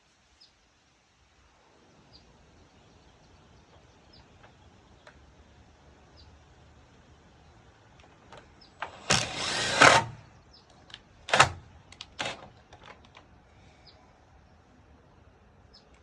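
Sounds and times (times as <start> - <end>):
cordless drill running: 8.8 - 10.2.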